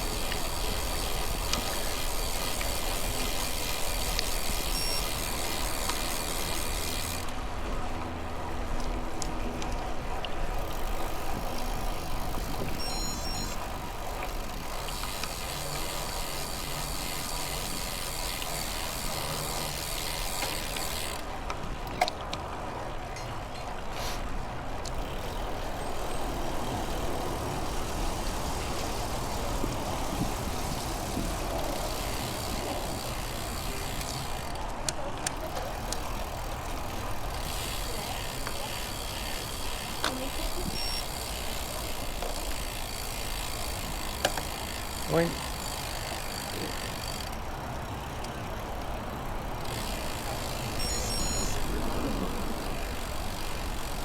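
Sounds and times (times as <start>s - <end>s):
bicycle rolling: 0.0s - 54.0s
wind noise: 11.2s - 13.9s, 49.8s - 54.0s.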